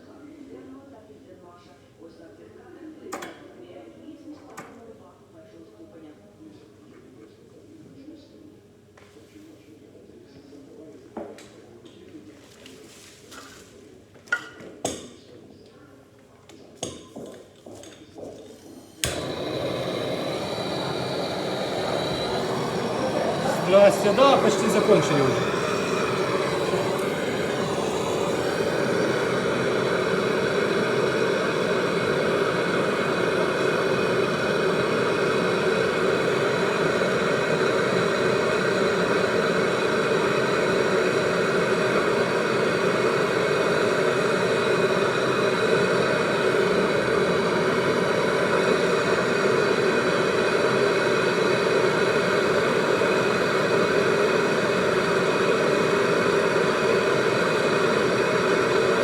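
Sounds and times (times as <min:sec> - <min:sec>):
machine hiss: 0:18.5 - 0:59.0
machine humming: 0:18.6 - 0:59.0.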